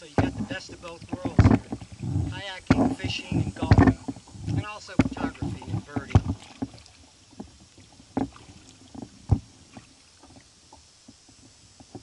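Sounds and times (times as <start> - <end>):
loud thumps: 0.0 - 6.4
kayak knocks and splashes: 0.0 - 10.5.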